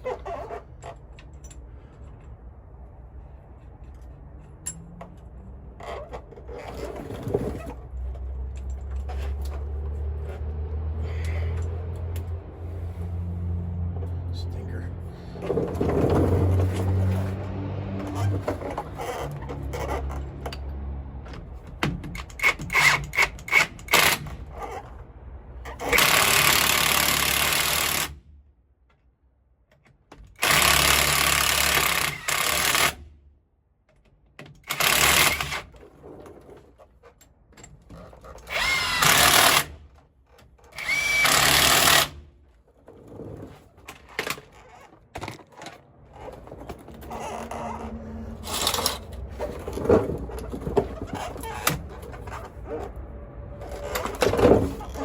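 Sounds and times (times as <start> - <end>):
power tool rattling bursts: 25.8 - 28.2, 30.4 - 33.0, 34.6 - 35.7, 38.4 - 39.8, 40.7 - 42.2.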